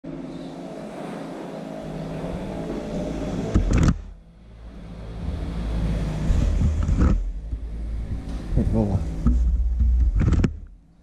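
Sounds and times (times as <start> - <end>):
motorcycle engine running: 3.6 - 10.8
loud thump: 6.3 - 10.8.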